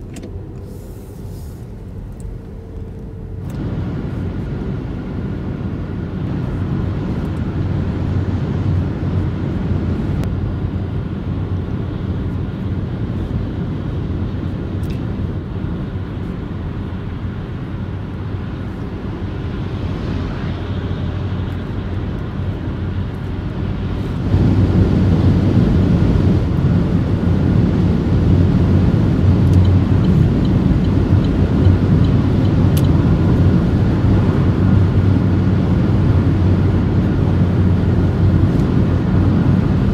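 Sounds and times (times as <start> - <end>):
tyre and road noise: 0.0 - 39.9
wind noise: 17.7 - 39.9.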